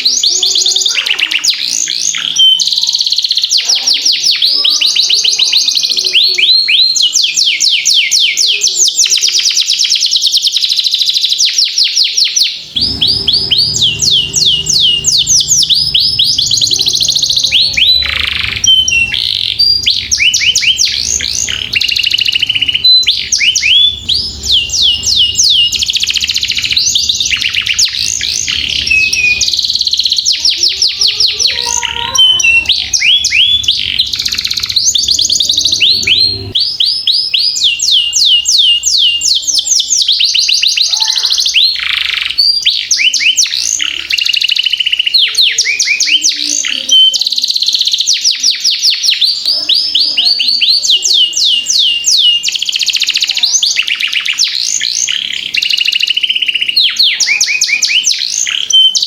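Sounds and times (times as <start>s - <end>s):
canary singing trills: 0.0s - 59.0s
low background hum: 12.6s - 39.0s.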